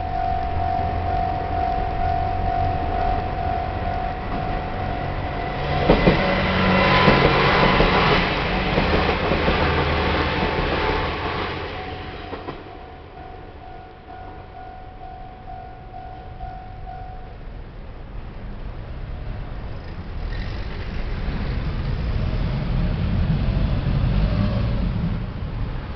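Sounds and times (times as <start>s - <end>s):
crossing warning bell ringing: 0.0s - 18.0s
train wheels clattering over rails: 4.2s - 12.9s.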